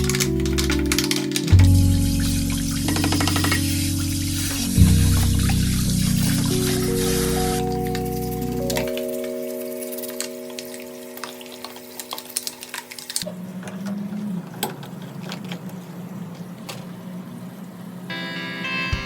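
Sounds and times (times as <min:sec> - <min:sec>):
low machine hum: 0:00.0 - 0:09.0
held music tone: 0:00.0 - 0:13.2, 0:18.1 - 0:19.0
crackling sizzling water: 0:00.0 - 0:13.3.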